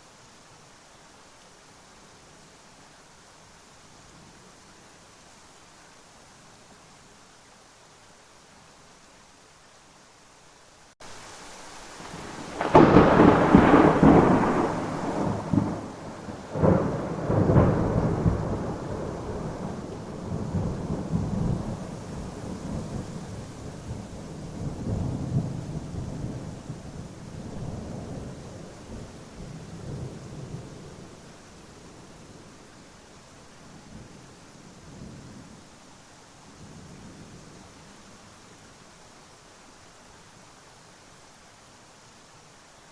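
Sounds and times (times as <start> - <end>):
steady rain: 0.0 - 42.9
thunder rumbling: 12.0 - 31.1.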